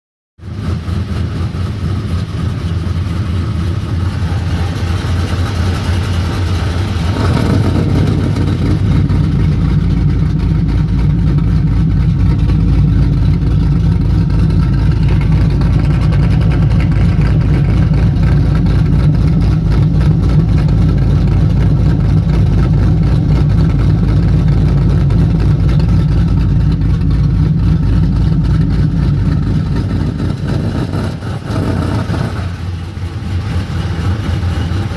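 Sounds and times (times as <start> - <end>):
car engine running: 0.4 - 34.9.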